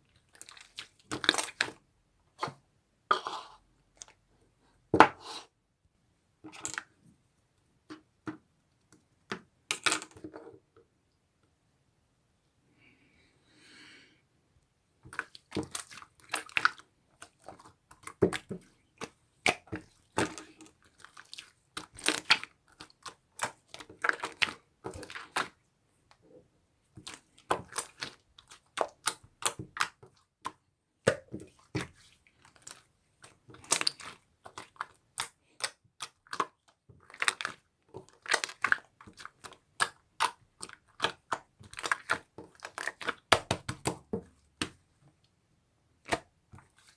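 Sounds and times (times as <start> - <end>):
slime squished by hand: 31.1 - 44.8.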